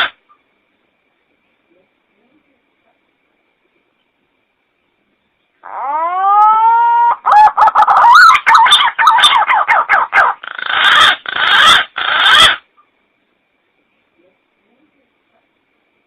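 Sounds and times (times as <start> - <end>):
pigeon calls: 5.6 - 12.7.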